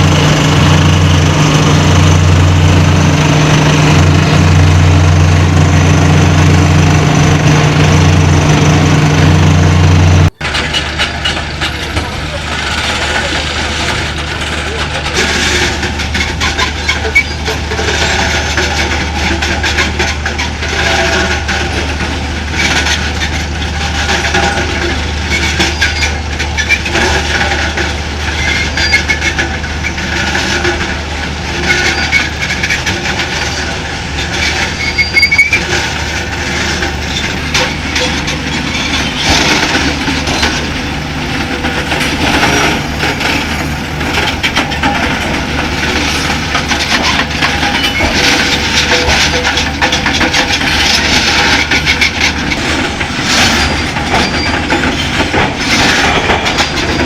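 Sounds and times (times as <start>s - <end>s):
metal squealing on metal: 14.6s - 30.8s, 31.4s - 57.0s
metallic clanking: 31.7s - 57.0s.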